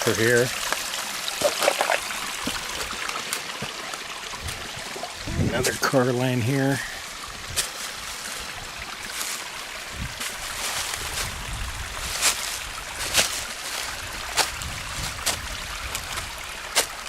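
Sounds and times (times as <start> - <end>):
trickling running water: 0.0 - 17.0.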